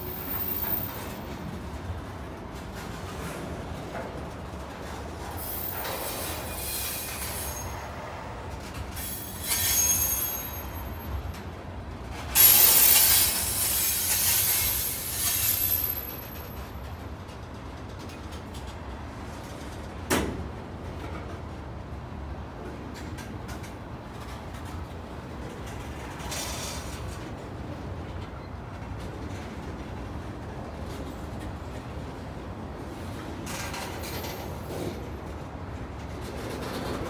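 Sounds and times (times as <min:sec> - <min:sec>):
freight cars rumbling on rail: 0:00.0 - 0:37.0
high-pitched wheel squeal: 0:00.1 - 0:01.2, 0:05.4 - 0:08.2, 0:09.0 - 0:11.0, 0:12.4 - 0:16.4.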